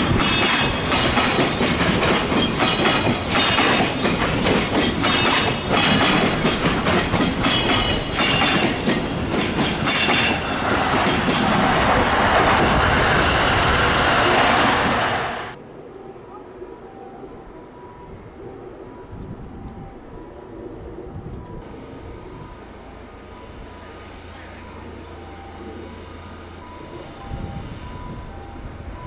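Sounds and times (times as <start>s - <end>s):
train wheels clacking over rail joints: 0.0s - 15.6s.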